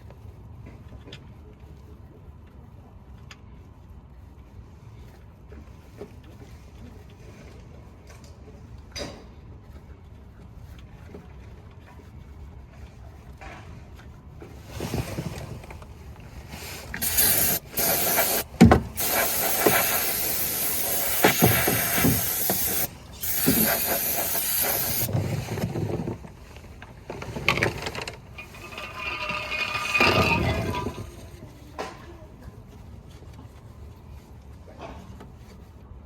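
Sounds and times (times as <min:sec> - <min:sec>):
hissing spray bursts: 0:16.8 - 0:25.7.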